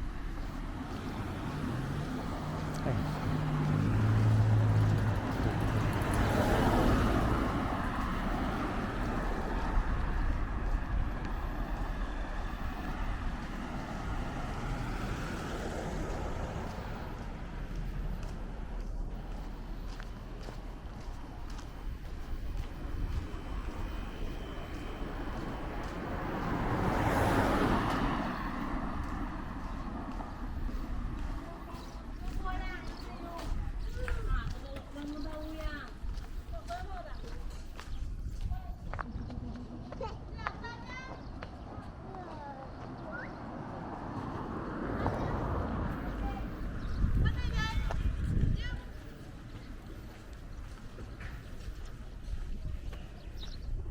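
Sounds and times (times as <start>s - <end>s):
vehicle passing by: 0.0s - 53.9s
wind on microphone: 5.1s - 17.6s, 20.8s - 40.4s, 43.3s - 49.9s, 51.2s - 53.9s.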